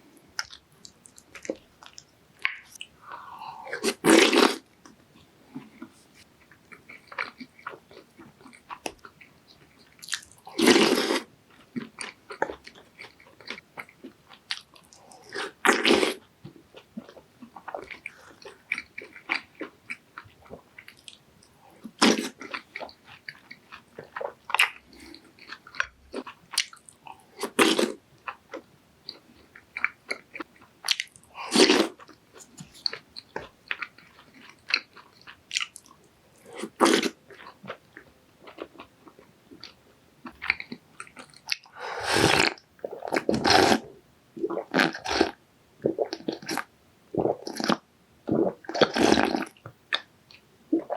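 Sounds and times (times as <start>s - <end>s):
crunching and chewing food: 0.0s - 46.7s, 47.3s - 50.9s.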